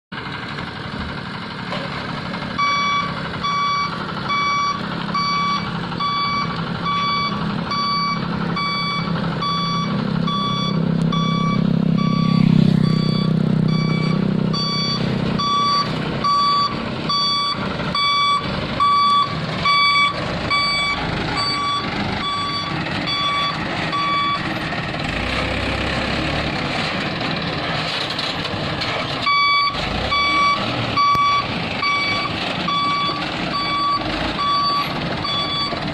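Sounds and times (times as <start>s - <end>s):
diesel engine running: 0.1s - 35.9s
truck reversing alarm beeping: 2.3s - 26.4s, 29.2s - 35.9s.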